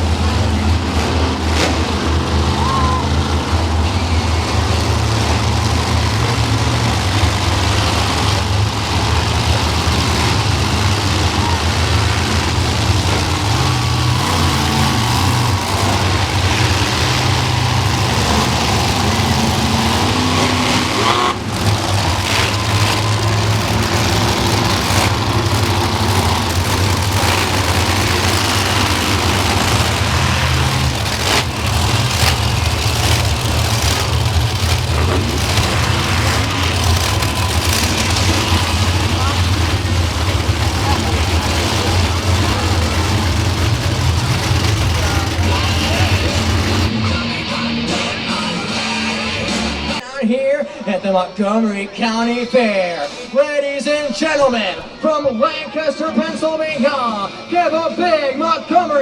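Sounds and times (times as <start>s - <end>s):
monster truck engines idling: 0.0s - 50.0s.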